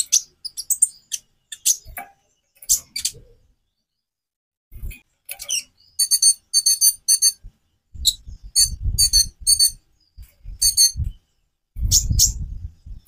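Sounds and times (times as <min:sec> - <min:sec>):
bird chattering high notes: 0:06.0 - 0:07.4, 0:08.6 - 0:09.8
low fluttering rumble: 0:08.0 - 0:09.6, 0:10.2 - 0:11.2, 0:11.8 - 0:13.0.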